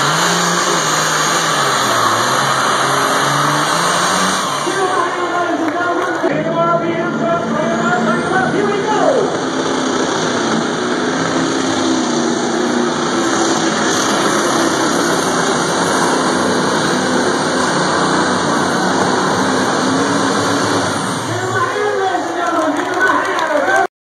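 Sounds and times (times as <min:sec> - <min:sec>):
truck engine running hard: 0:00.0 - 0:23.9.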